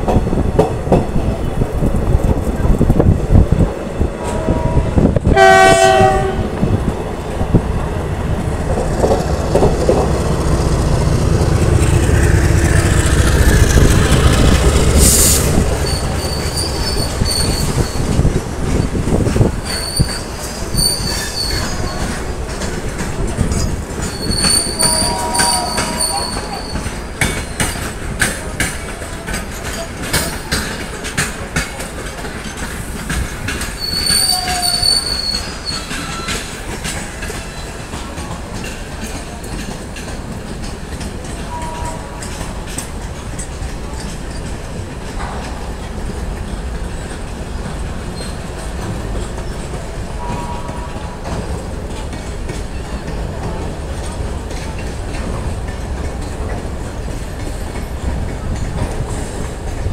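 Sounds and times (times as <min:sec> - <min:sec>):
train rumble: 0:00.0 - 0:59.9
train horn blast: 0:04.2 - 0:06.5, 0:24.5 - 0:26.6, 0:41.5 - 0:42.3, 0:50.2 - 0:51.2
wheels clattering over rail joints: 0:06.8 - 0:59.9
train wheel squeals: 0:15.0 - 0:19.0, 0:19.6 - 0:22.4, 0:23.4 - 0:28.0, 0:32.5 - 0:38.4, 0:39.0 - 0:42.5, 0:48.1 - 0:51.6.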